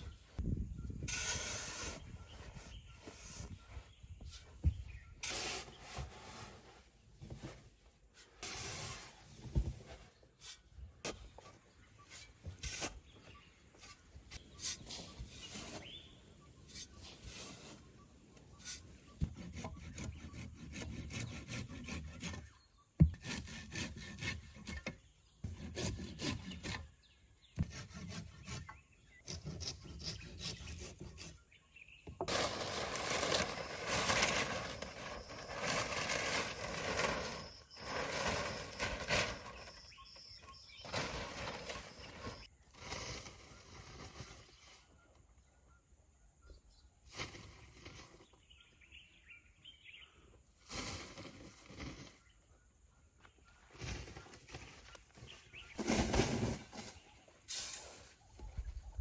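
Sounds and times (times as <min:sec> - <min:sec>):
wood scraping and rubbing: 0:16.7 - 0:26.9, 0:27.6 - 0:31.4, 0:32.3 - 0:44.6.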